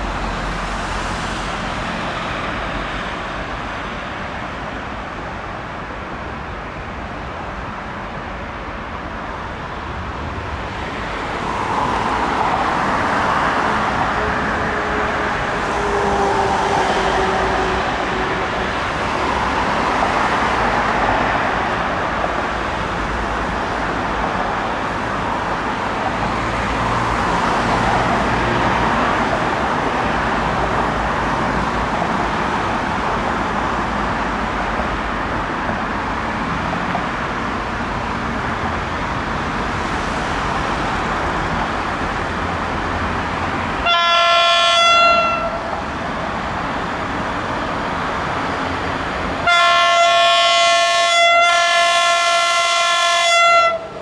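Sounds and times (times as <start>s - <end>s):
train rumbling: 0.0s - 54.0s
train horn blast: 13.7s - 18.5s, 43.8s - 45.7s, 49.4s - 53.9s.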